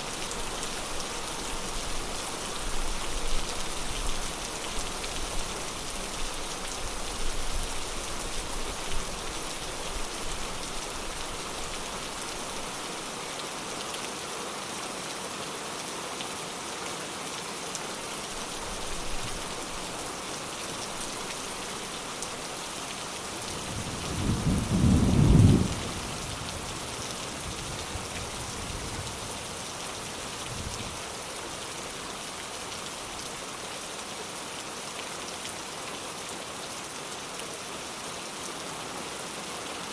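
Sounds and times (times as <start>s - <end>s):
steady rain falling: 0.0s - 39.9s
thunder rumbling: 23.6s - 26.0s.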